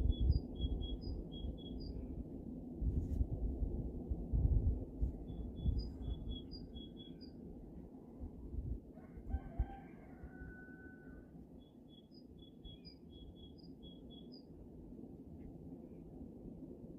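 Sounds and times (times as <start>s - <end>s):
small bird chirping: 0.0s - 2.0s, 5.3s - 7.4s, 11.6s - 14.5s
rooster crowing: 8.9s - 11.3s.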